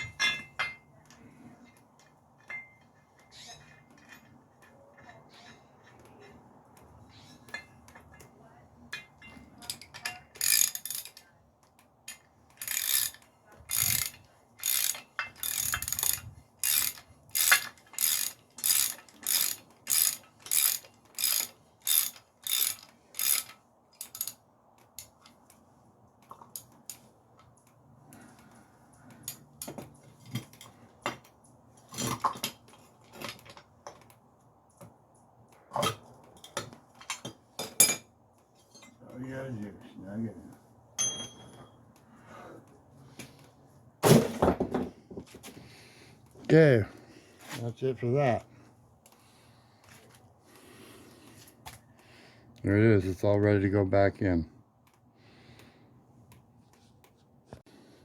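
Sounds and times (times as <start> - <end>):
ratchet wrench clicking: 9.7 - 11.2, 12.1 - 24.4.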